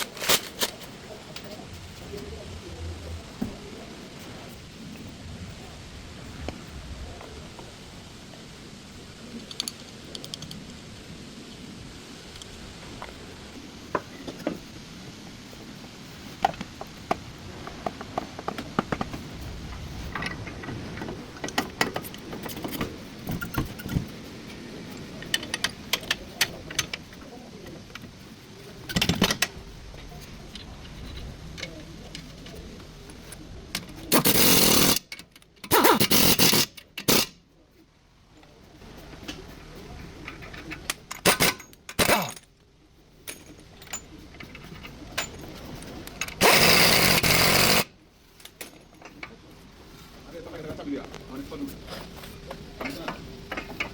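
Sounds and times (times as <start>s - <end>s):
rush of noise: 0.0s - 35.0s.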